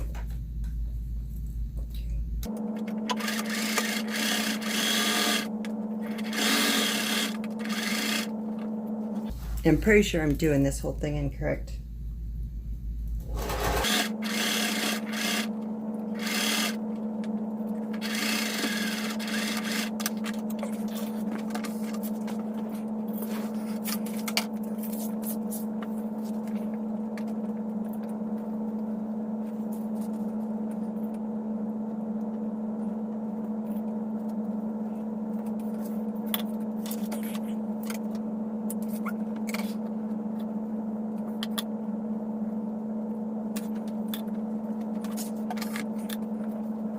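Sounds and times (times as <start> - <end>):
sewing machine running: 2.5 - 8.6, 13.2 - 17.1, 17.7 - 21.2.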